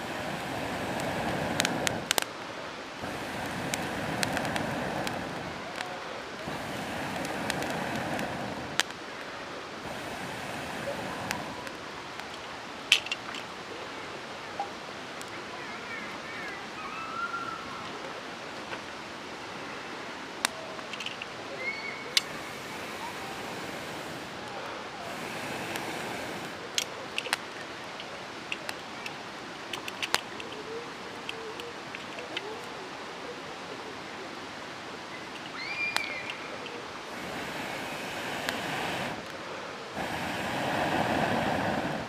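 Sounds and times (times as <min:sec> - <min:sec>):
campfire crackling and hissing: 0:00.0 - 0:42.0.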